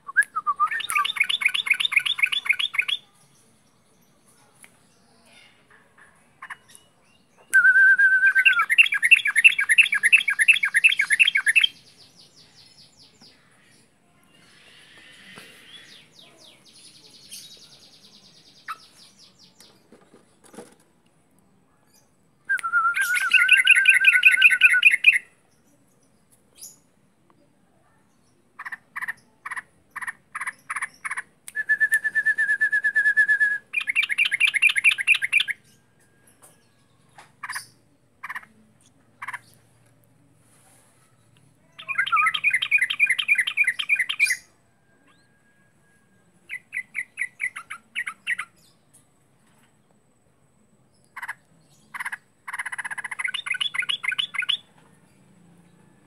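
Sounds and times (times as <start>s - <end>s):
bird singing whistled phrases: 0.0s - 3.0s, 7.4s - 11.8s, 22.5s - 25.3s, 31.5s - 35.6s, 41.8s - 44.5s, 53.1s - 54.6s
bird twittering: 51.2s - 54.6s.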